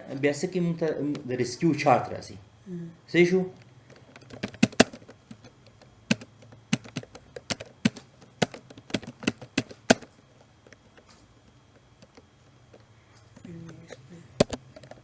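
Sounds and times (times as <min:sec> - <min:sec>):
computer keyboard typing: 0:04.0 - 0:10.1.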